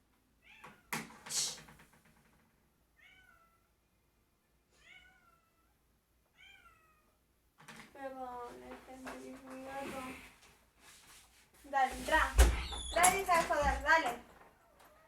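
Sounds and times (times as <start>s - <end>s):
cat meowing: 3.0s - 3.7s, 4.7s - 7.2s.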